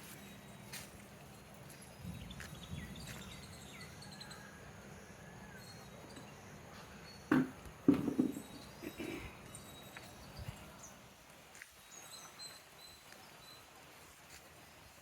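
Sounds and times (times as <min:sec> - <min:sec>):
loud knock: 0:07.3 - 0:08.4.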